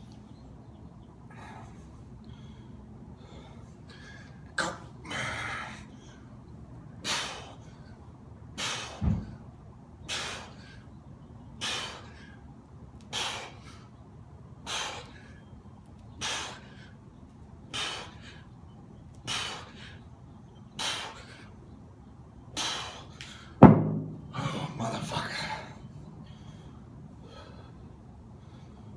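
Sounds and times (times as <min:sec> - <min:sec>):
low thud: 0:09.0 - 0:09.4, 0:23.6 - 0:24.4.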